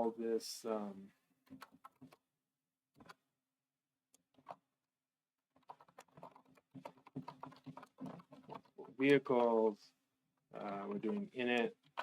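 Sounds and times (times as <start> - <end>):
typing on computer keyboard: 5.6 - 9.2, 10.6 - 12.0.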